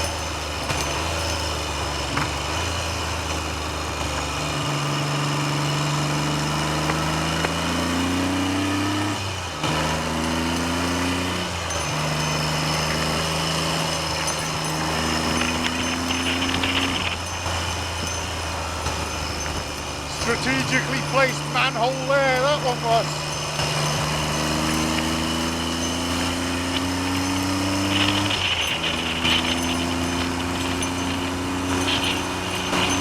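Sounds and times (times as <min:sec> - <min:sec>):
motorcycle engine accelerating: 0:00.0 - 0:33.0
wind noise on microphone: 0:14.8 - 0:18.6, 0:26.2 - 0:33.0.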